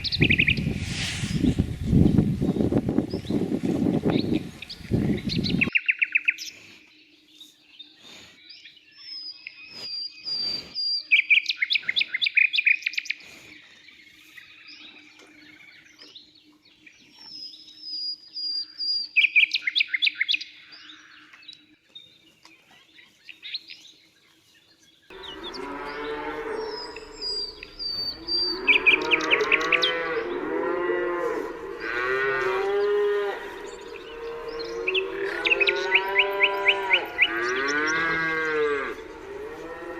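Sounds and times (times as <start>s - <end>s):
small birds chirping: 0.0s - 39.9s
cattle mooing: 25.1s - 39.9s.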